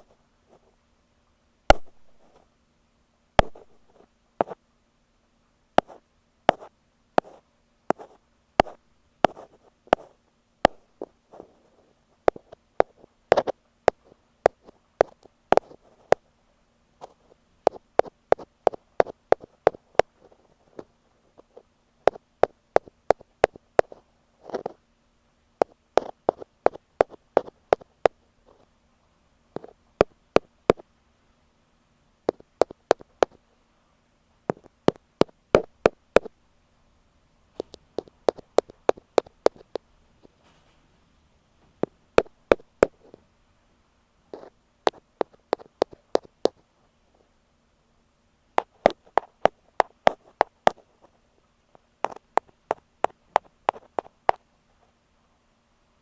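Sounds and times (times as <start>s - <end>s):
faint steady hum: 0.0s - 56.0s
ear pick tapping on microphone: 1.7s - 2.2s, 3.4s - 4.6s, 5.8s - 10.1s, 12.3s - 16.2s, 17.0s - 20.1s, 21.5s - 24.8s, 25.6s - 28.2s, 29.6s - 30.8s, 32.3s - 33.4s, 34.5s - 36.3s, 37.6s - 39.8s, 41.8s - 43.2s, 44.4s - 46.6s, 48.6s - 50.8s, 52.0s - 54.4s.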